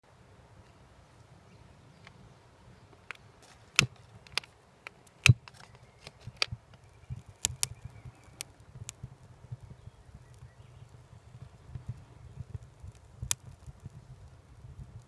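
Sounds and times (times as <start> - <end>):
wood fire crackling and popping: 3.0 - 15.0.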